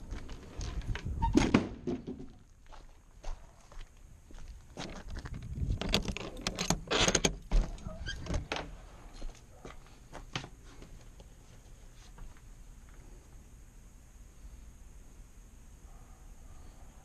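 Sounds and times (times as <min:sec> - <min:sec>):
sharp clicks and rattles: 0:05.0 - 0:08.7.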